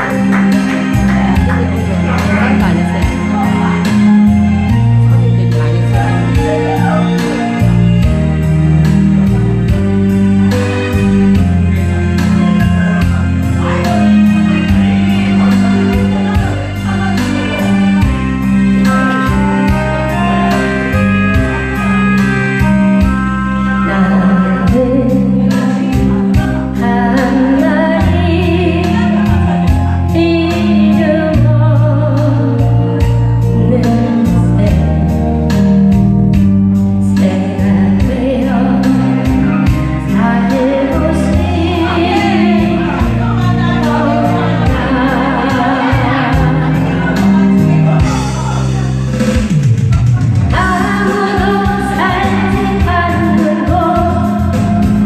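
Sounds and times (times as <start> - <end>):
backing music with steady beat: 0.0 - 55.0
person singing: 23.6 - 35.2, 37.0 - 55.0.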